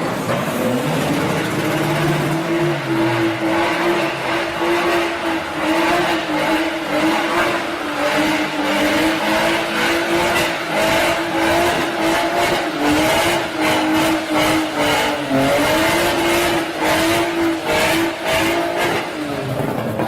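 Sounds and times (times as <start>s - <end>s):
car engine at high revs: 0.0s - 20.0s.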